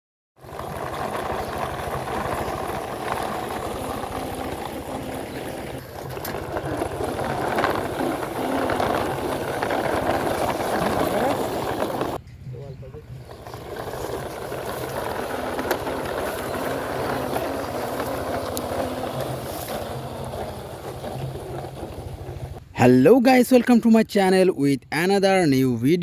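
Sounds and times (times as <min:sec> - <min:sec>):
motor running with rough drone: 0:00.4 - 0:12.2, 0:13.0 - 0:22.6.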